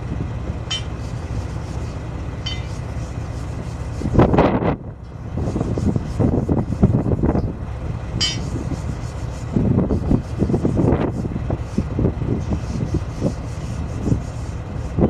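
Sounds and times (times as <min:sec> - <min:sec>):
diesel engine running: 0:00.0 - 0:15.0
high metallic ring: 0:00.7 - 0:01.0, 0:02.4 - 0:02.8, 0:08.2 - 0:08.5
metal clanks and knocks: 0:08.2 - 0:08.6.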